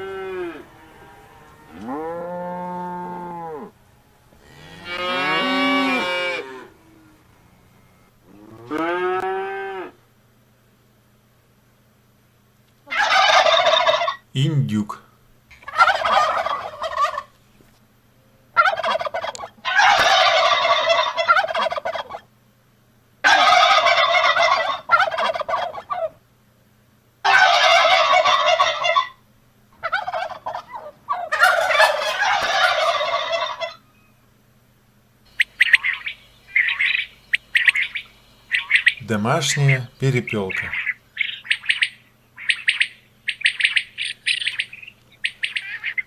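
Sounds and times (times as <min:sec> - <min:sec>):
turkey gobbling: 0:00.0 - 0:09.3, 0:12.8 - 0:14.3, 0:15.5 - 0:17.4, 0:18.6 - 0:22.3, 0:23.2 - 0:26.2, 0:27.2 - 0:29.2, 0:29.8 - 0:33.9, 0:35.3 - 0:46.0
bird chirping: 0:35.3 - 0:46.0.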